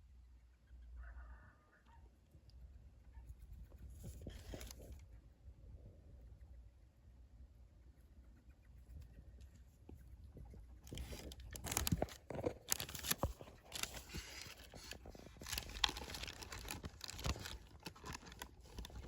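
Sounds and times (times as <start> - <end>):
animal chewing a grape: 8.2 - 19.0.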